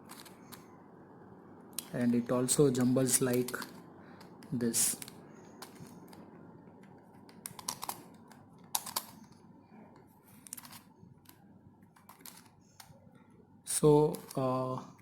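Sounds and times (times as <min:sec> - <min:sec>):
plastic puzzle clicking: 0:00.0 - 0:00.6, 0:03.2 - 0:06.2, 0:06.8 - 0:09.4, 0:10.4 - 0:12.9, 0:14.0 - 0:14.4.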